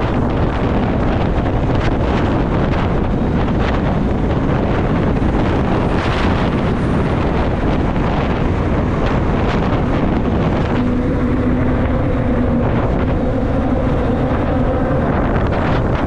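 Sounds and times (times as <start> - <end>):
road noise: 0.0 - 16.0
wind rushing over microphone: 0.0 - 16.0
motorcycle engine: 4.7 - 16.0.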